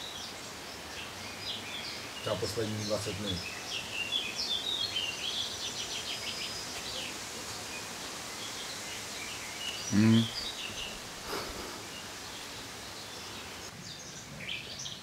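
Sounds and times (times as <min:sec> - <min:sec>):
outdoor background hiss: 0:00.0 - 0:15.0
small birds chirping and trilling: 0:00.0 - 0:15.0
low voice-like sound: 0:09.9 - 0:10.3.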